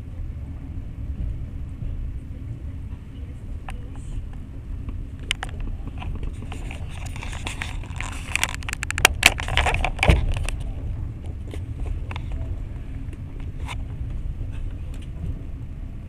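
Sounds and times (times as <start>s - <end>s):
train wheels rumbling on rails: 0.0s - 16.0s
sharp clicks and rattles: 2.8s - 15.4s.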